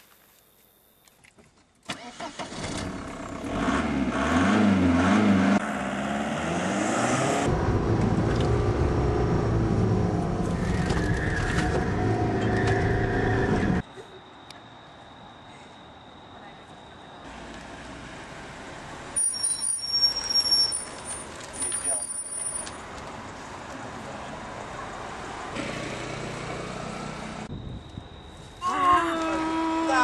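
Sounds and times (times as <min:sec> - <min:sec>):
car engine starting and revving: 0:01.9 - 0:13.8.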